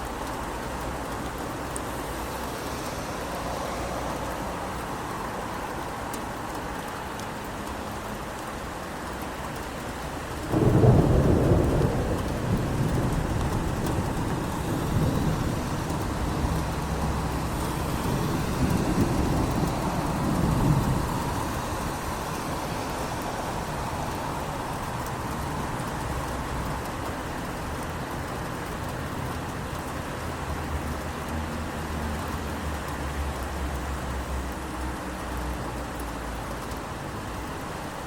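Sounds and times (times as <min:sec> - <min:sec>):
steady rain falling: 0:00.0 - 0:38.0
thunder crack and rumble: 0:10.4 - 0:30.2.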